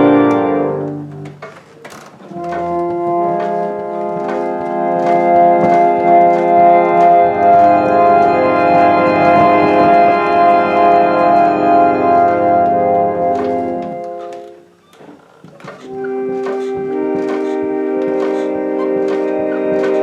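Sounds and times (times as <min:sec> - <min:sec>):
reed organ chords: 0:00.0 - 0:14.8, 0:15.6 - 0:20.0
clacks: 0:15.4 - 0:20.0.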